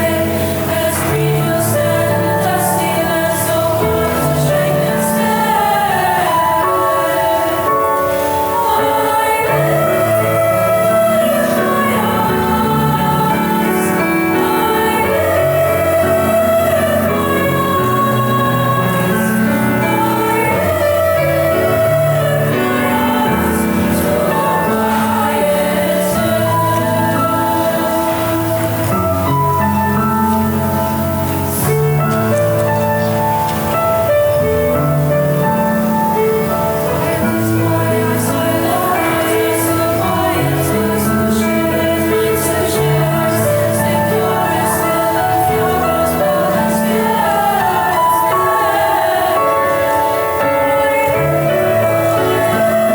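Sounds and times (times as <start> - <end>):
choir singing held notes: 0.0 - 52.9
instrumental accompaniment: 0.0 - 52.9.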